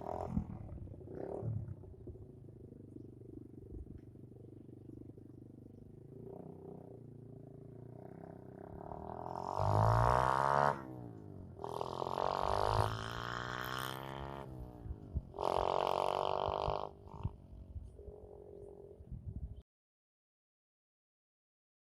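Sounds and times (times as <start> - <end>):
dirt bike engine revving: 0.0 - 1.8, 8.0 - 17.4.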